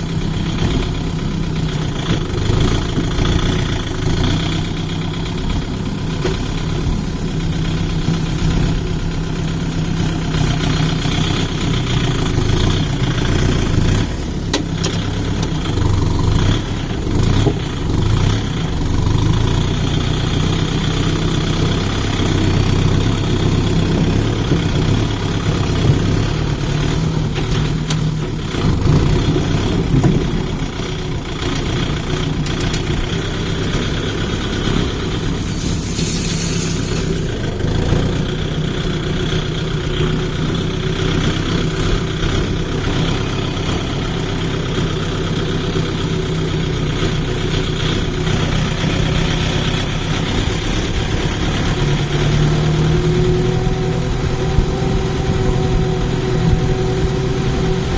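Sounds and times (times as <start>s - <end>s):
tractor diesel engine running: 0.0s - 57.9s
brief hiss: 35.3s - 37.3s.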